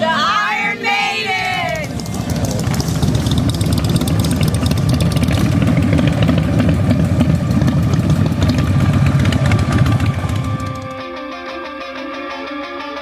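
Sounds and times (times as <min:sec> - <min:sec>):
motorcycle engines idling: 0:01.2 - 0:11.0.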